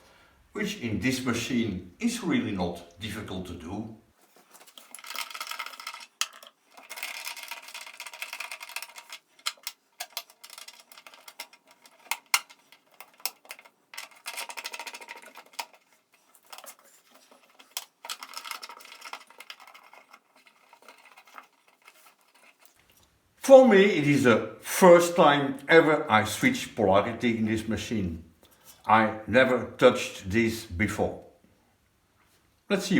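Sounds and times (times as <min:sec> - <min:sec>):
rattling handling noise: 0:04.2 - 0:22.8.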